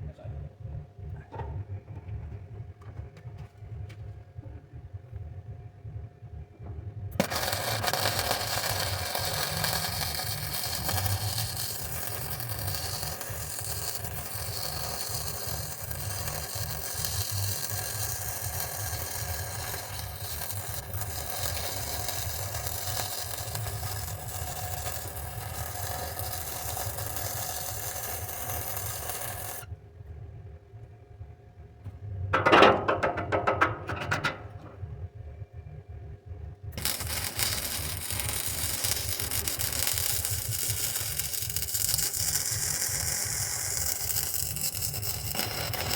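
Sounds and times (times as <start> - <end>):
welder arc crackling: 7.1 - 29.7, 36.8 - 45.9.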